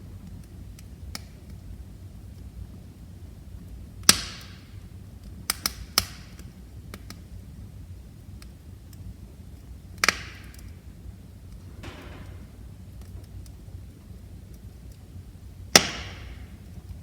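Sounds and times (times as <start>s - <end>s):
wood fire rumbling and crackling: 0.0s - 17.0s
loud fire pops: 3.6s - 7.3s, 8.3s - 17.0s.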